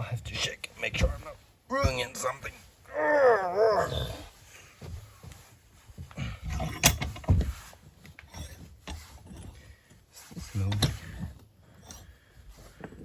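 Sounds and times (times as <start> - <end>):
dull knocks and clunks: 0.8 - 2.3, 4.6 - 12.1.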